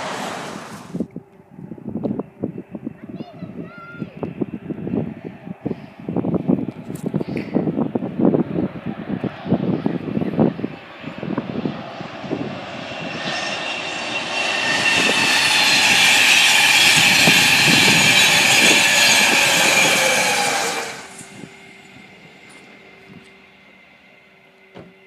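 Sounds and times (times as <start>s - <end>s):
train passing at speed: 0.0s - 1.1s, 7.6s - 25.0s
high ringing of rails: 10.8s - 25.0s.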